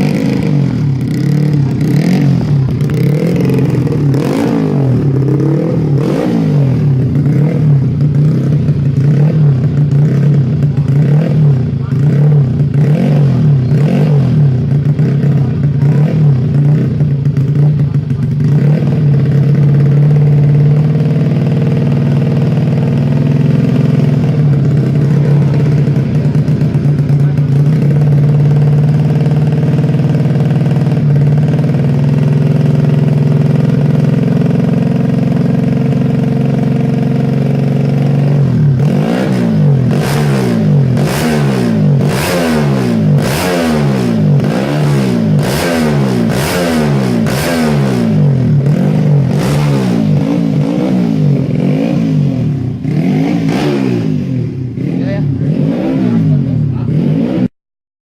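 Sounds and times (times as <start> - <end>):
motorcycle engine revving: 0.0 - 57.5.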